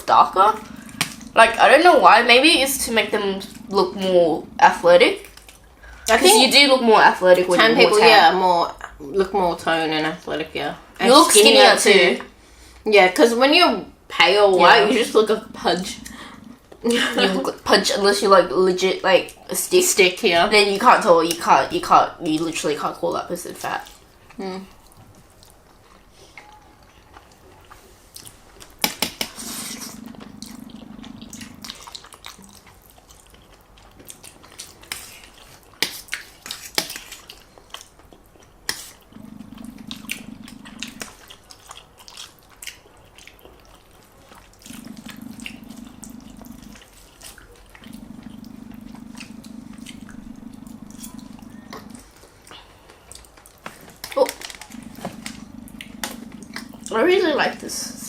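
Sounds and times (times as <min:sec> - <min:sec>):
wet chewing: 0:00.0 - 0:09.0, 0:14.5 - 0:18.2, 0:19.0 - 0:58.0
low steady hum: 0:00.0 - 0:25.6, 0:29.3 - 0:33.4, 0:39.0 - 0:41.6, 0:44.0 - 0:58.0.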